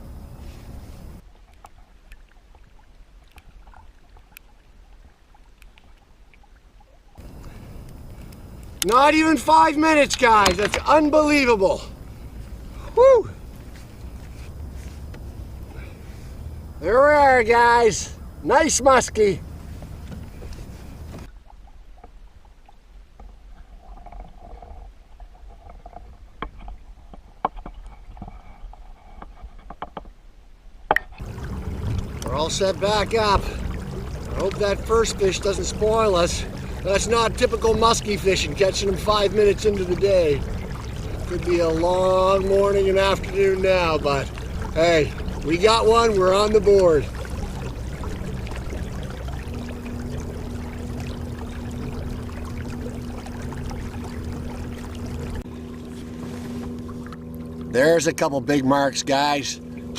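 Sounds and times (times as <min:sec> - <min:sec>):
water trickling and dripping: 0:00.1 - 0:26.8, 0:31.0 - 0:58.2
low rumble: 0:07.2 - 0:21.3, 0:31.2 - 0:58.0
fishing gear clicking and knocking: 0:10.0 - 0:11.1.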